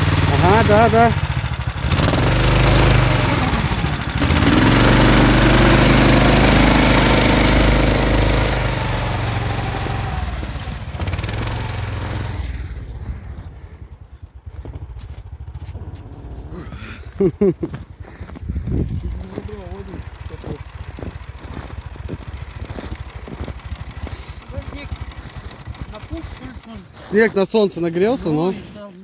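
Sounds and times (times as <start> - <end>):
vehicle engine revving hard: 0.0 - 13.4.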